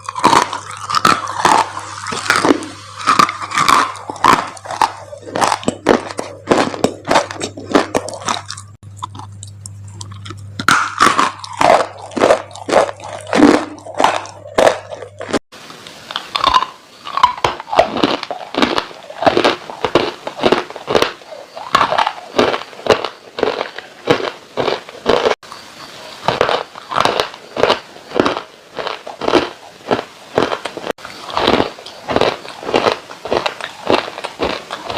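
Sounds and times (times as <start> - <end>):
low steady hum: 0.0 - 34.9
dry clay crunching: 26.2 - 34.9.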